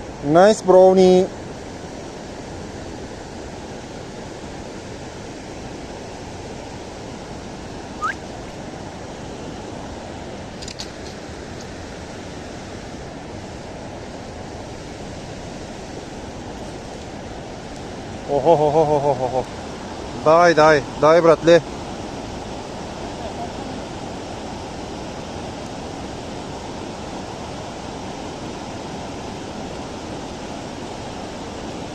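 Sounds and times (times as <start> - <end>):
river water rushing: 0.0 - 31.9
rising chirp: 8.0 - 8.2.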